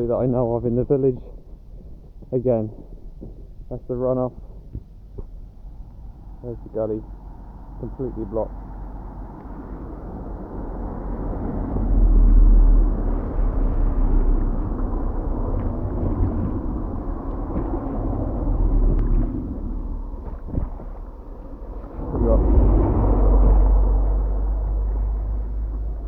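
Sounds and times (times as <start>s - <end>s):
heavy low rumble: 0.0s - 26.0s
water running down road: 8.9s - 26.0s.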